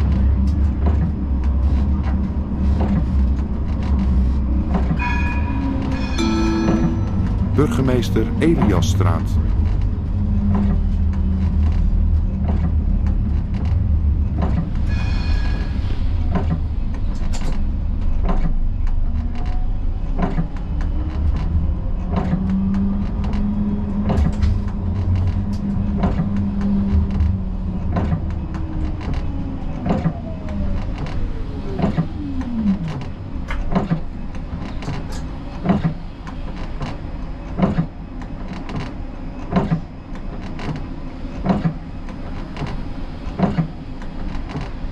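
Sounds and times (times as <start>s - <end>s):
tram motor whine: 0.0s - 20.0s
tram rumbling on rails: 0.0s - 44.9s.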